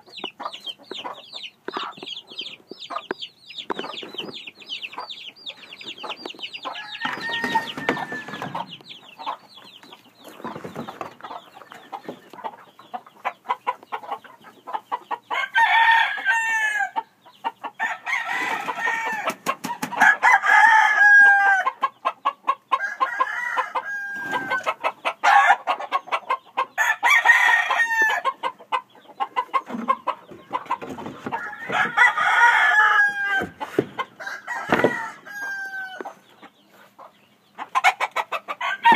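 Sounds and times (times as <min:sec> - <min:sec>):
chicken clucking: 0:00.0 - 0:38.9
roosters crowing: 0:06.0 - 0:09.5, 0:13.4 - 0:36.3, 0:37.7 - 0:38.9.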